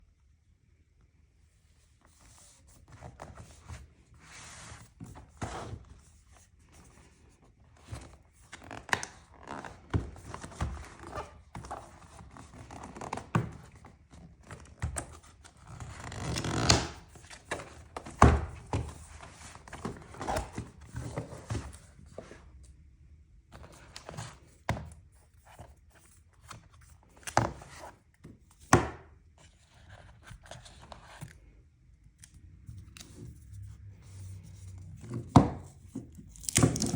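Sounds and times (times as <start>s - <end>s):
packaging clicks and knocks: 35.4s - 36.9s.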